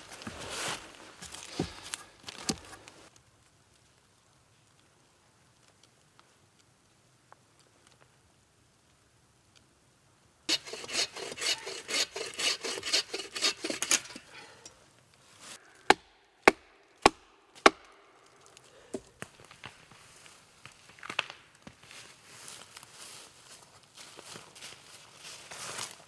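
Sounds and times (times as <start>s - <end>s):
wood scraping and crackling: 0.0s - 3.1s, 10.5s - 15.6s.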